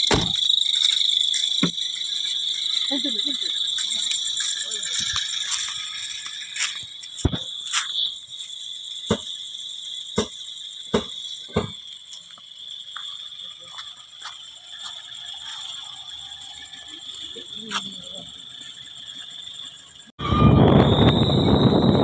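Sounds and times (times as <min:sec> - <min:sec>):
night insects chirring: 0:00.0 - 0:22.0
sharp knocks: 0:00.1 - 0:00.4, 0:09.1 - 0:09.3, 0:10.2 - 0:11.8.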